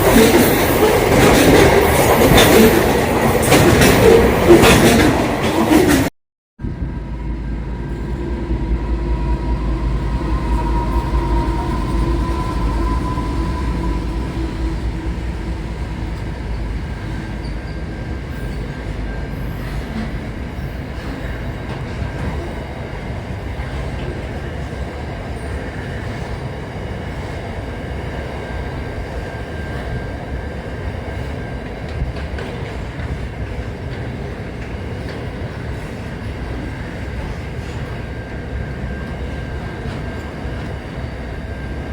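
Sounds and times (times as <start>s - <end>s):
train rumbling on rails: 0.0s - 41.9s
humming tone: 6.6s - 19.2s.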